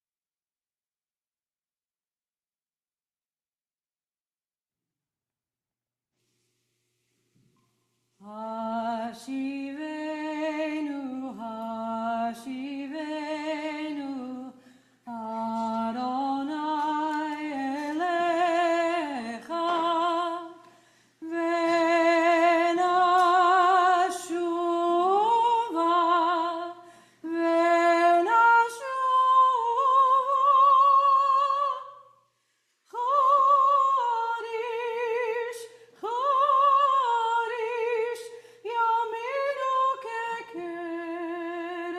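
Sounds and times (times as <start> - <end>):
woman singing unaccompanied: 8.2 - 20.6, 21.2 - 32.1, 32.9 - 41.9.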